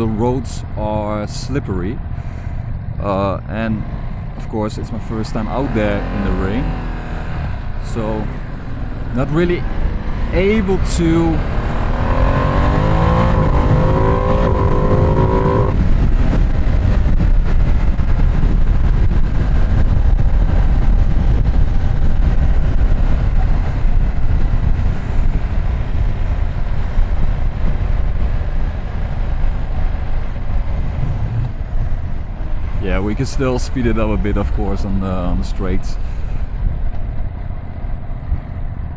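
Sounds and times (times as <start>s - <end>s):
wind rushing on microphone: 5.8s - 38.9s
motorcycle engine pulling hard: 9.1s - 18.3s.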